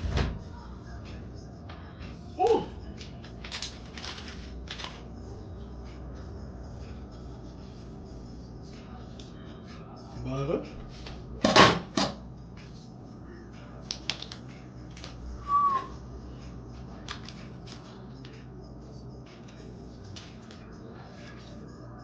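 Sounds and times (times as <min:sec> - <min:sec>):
short whistle-like tone: 0:15.4 - 0:16.0.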